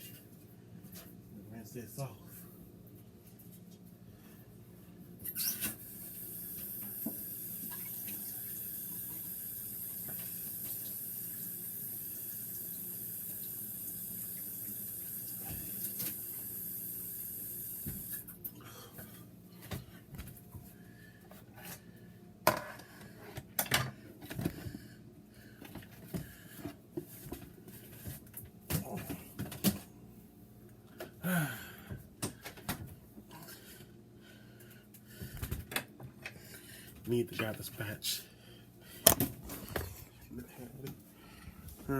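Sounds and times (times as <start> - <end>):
tap water running: 5.9 - 18.2.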